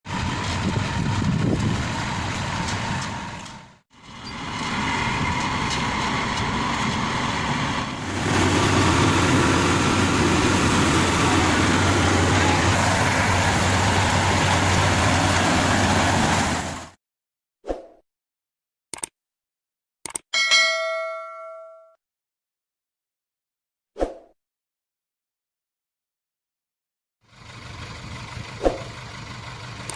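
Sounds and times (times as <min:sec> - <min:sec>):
diesel engine running: 0:00.0 - 0:17.0, 0:27.2 - 0:29.9.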